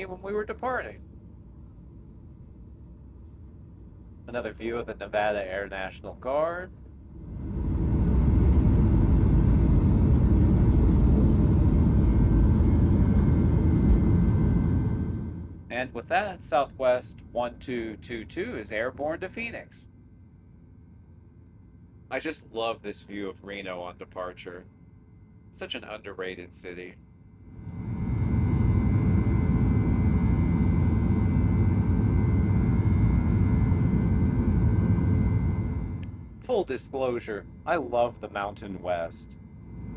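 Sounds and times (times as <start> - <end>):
faint steady whine: 0.0 - 39.9
jet engines rumbling in cabin: 0.0 - 39.9
airflow: 27.5 - 36.5.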